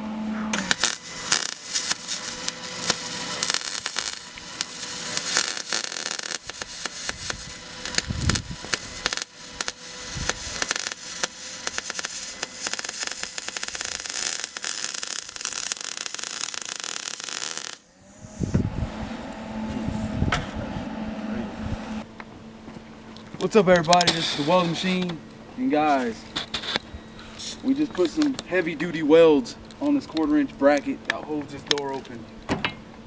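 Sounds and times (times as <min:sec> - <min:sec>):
welding arc crackling: 0:00.5 - 0:18.0.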